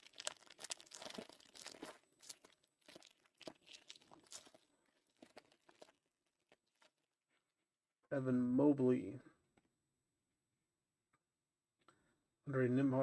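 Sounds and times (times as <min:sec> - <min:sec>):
wrapper crinkling and tearing: 0:00.0 - 0:07.0.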